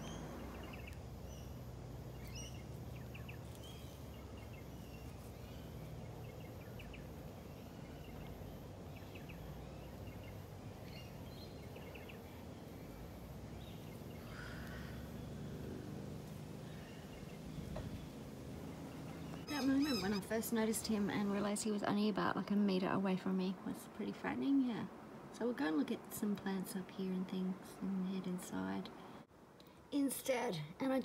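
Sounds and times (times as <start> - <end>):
low background noise: 0.0 - 31.0
bird chirps and calls: 2.2 - 7.0, 19.2 - 20.4.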